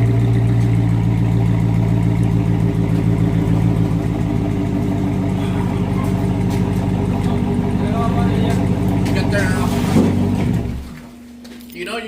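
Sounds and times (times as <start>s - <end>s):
car engine idling deep exhaust: 0.0s - 11.4s.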